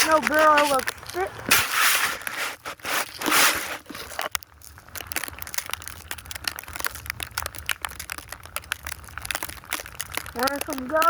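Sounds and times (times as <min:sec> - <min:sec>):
snow crunching: 0:00.0 - 0:05.4.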